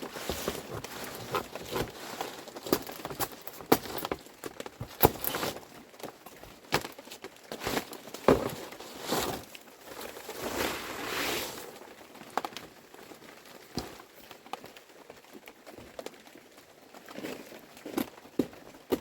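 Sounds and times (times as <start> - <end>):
rustling: 0.0 - 14.6
objects knocking and tapping: 8.2 - 8.8.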